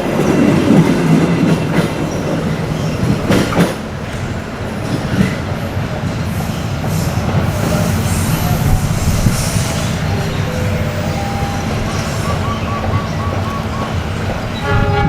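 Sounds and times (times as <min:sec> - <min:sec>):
train wheels rumbling on rails: 0:00.0 - 0:15.0
train wheels squealing: 0:06.2 - 0:15.0.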